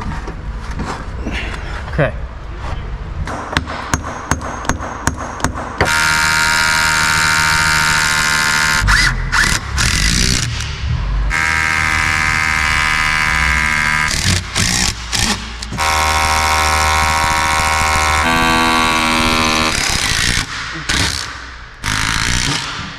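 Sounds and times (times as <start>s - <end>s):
hammer blows: 3.2s - 22.9s
power tool motor running: 5.9s - 10.5s, 11.3s - 21.2s.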